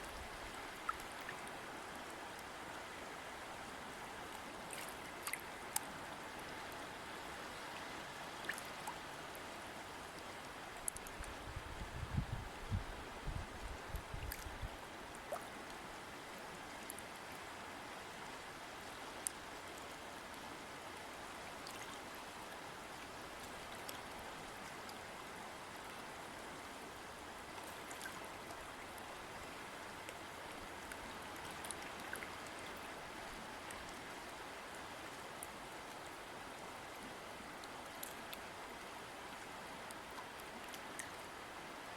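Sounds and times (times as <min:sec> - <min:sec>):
stream flowing over rocks: 0:00.0 - 0:41.9
small water splashes: 0:04.6 - 0:05.9, 0:08.4 - 0:09.0.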